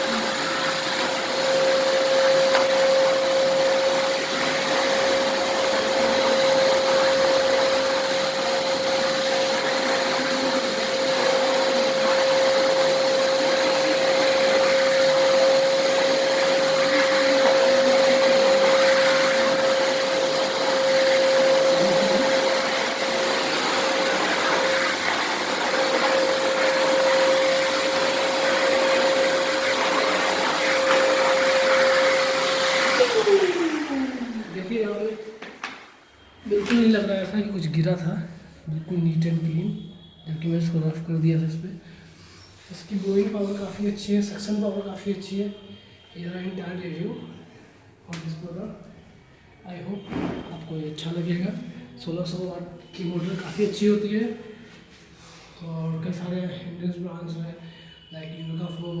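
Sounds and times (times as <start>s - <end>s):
vacuum cleaner running: 0.0s - 35.6s, 36.4s - 45.2s, 49.8s - 56.8s.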